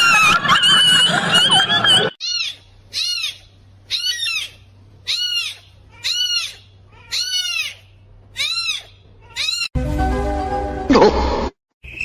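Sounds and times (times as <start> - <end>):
animal high-pitched cries: 2.2 - 9.8.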